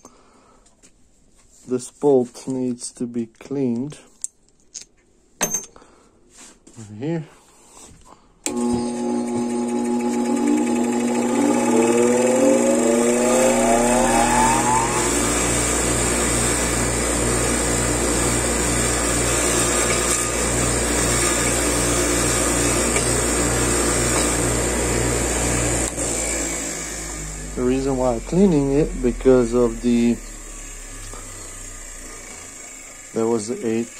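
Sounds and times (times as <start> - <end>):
power tool motor whine: 8.5 - 33.9.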